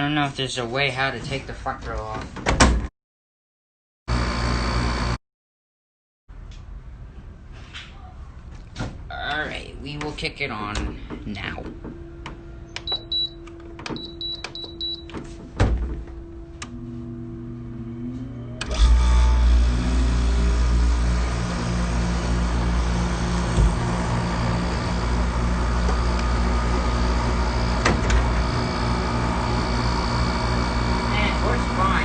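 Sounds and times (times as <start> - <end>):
air conditioner humming: 7.9 - 32.0
loud low hum: 11.0 - 32.0
air conditioner beeps: 12.6 - 15.5.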